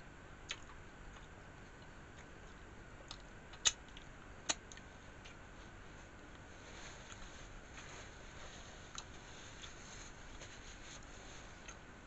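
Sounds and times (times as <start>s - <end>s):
crisp clicks of food: 0.5s - 5.4s
person chewing food: 0.5s - 5.5s, 8.9s - 9.8s.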